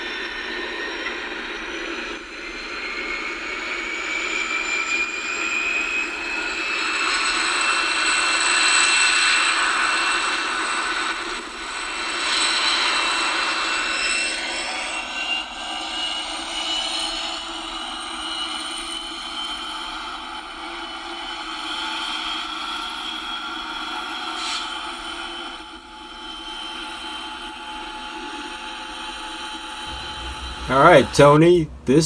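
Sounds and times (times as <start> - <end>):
model train wheel and rail noise: 29.9 - 32.0.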